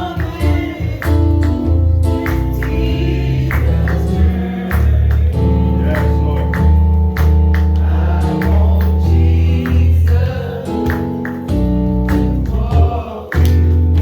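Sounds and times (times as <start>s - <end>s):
singing: 0.0s - 1.4s, 12.4s - 13.9s
strong bass: 0.0s - 10.8s
organ-like chords: 0.0s - 14.0s
drum or tambourine hits: 10.8s - 14.0s.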